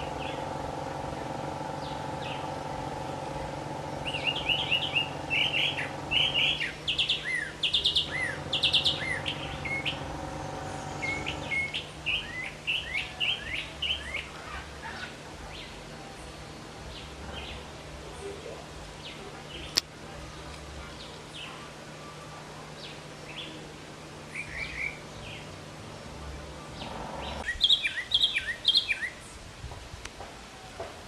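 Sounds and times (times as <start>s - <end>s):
birds chirping: 0.0s - 29.4s
faint steady hum: 0.0s - 31.0s.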